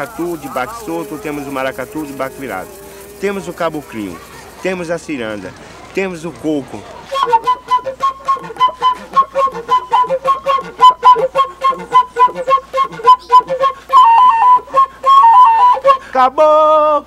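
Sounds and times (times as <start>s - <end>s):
man singing: 0.0s - 4.2s, 15.9s - 17.0s
flute melody: 0.0s - 5.0s, 7.0s - 16.9s
fast percussive clicks: 0.0s - 13.5s.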